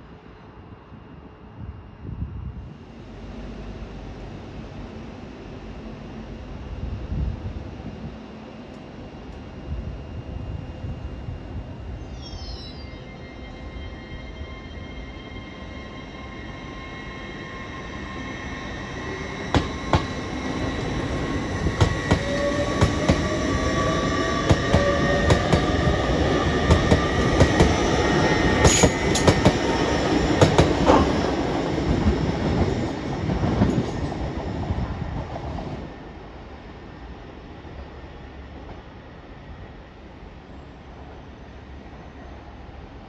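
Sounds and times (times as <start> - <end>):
electric train traction whine: 2.3 - 35.3
train wheel rumble: 14.0 - 40.3.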